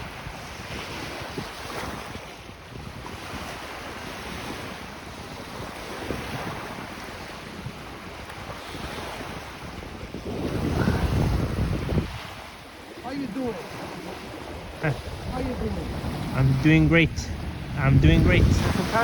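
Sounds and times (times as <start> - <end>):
lake waves washing onto shore: 0.0 - 19.0
wind buffeting microphone: 0.0 - 19.0.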